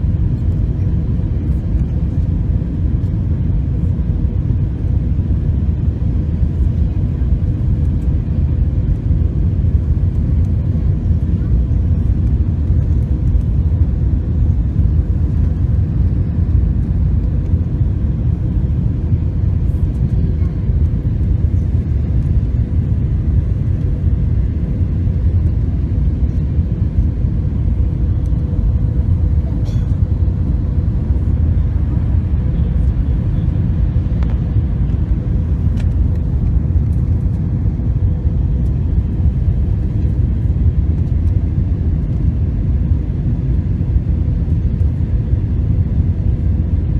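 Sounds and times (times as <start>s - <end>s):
airliner cabin rumble: 0.0s - 46.9s.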